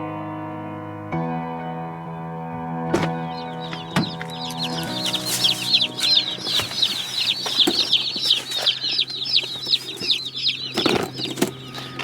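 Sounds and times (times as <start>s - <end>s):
background music: 0.0s - 8.6s
knocks: 2.9s - 12.0s
chicks peeping: 3.0s - 12.0s.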